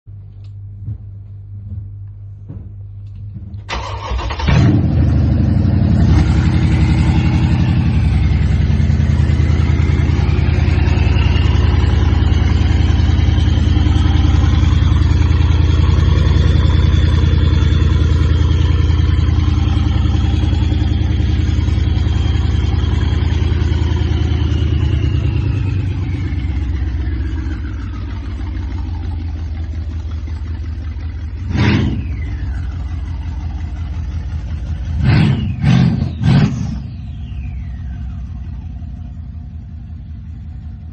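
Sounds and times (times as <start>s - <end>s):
engine starting: 3.6s - 5.3s
loud engine idling: 3.6s - 40.9s
high whine: 4.4s - 40.9s.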